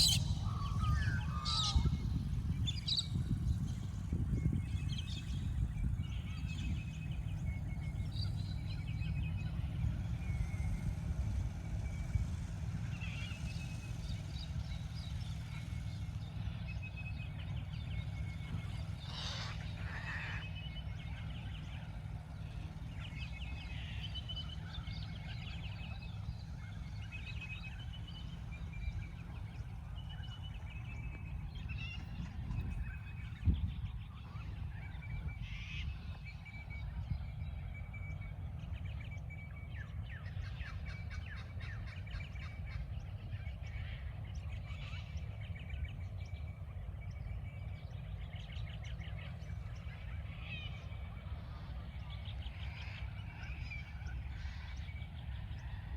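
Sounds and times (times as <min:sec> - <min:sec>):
low rumble: 0:00.0 - 0:12.4
birds chirping and twittering: 0:00.0 - 0:55.9.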